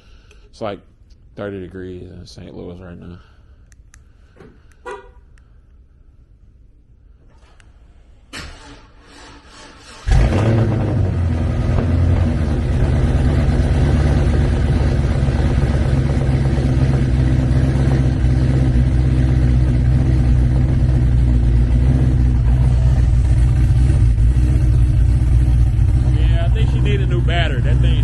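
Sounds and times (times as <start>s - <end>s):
car engine idling loud: 10.1s - 28.0s.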